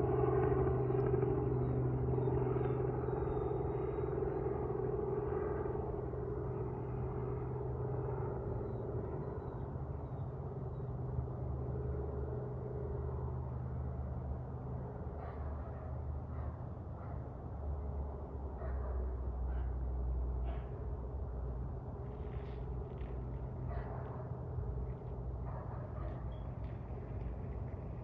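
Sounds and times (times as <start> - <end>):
aircraft engines droning: 0.0 - 28.0.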